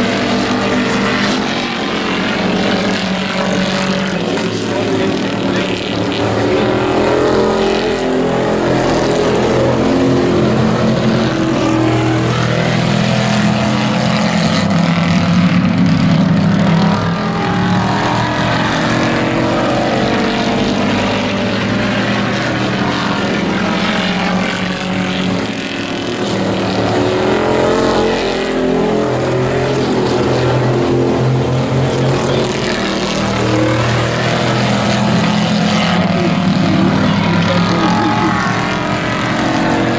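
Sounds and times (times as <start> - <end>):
race truck engines revving: 0.0 - 39.9.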